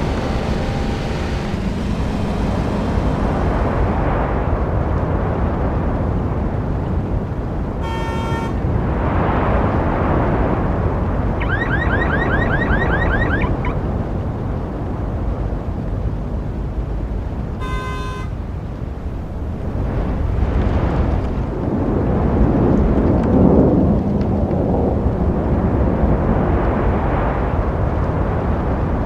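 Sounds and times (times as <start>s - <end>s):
road traffic rumble: 0.0s - 29.0s
car horn toots: 7.8s - 8.6s, 17.6s - 18.4s
electronic alarm warbling: 11.4s - 13.8s.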